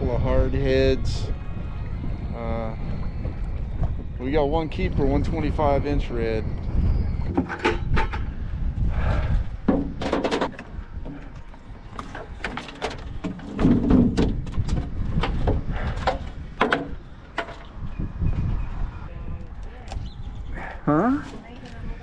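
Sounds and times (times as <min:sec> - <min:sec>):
steady low rumble: 0:00.0 - 0:22.0
sharp knocks and clatters: 0:09.7 - 0:11.2.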